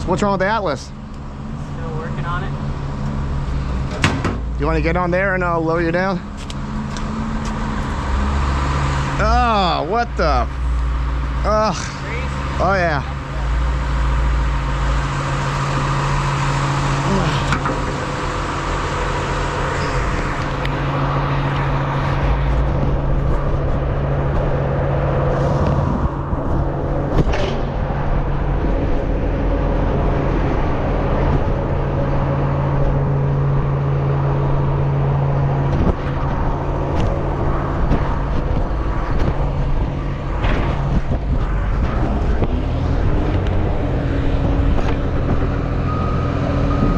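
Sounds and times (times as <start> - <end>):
vehicle engine running: 0.0 - 46.9
sharp knocks: 3.9 - 4.5.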